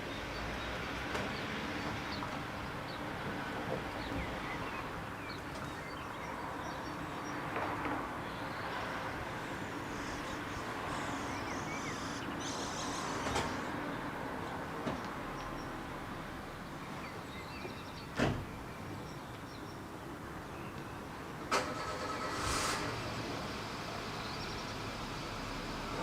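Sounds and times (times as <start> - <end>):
small birds chirping: 3.9 - 7.5, 8.2 - 15.8.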